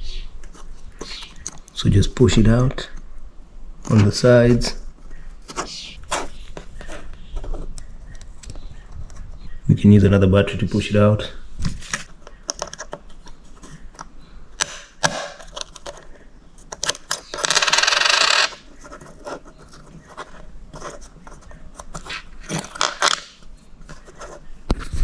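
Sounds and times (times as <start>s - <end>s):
small metallic clicks and scrapes: 15.4s - 25.0s.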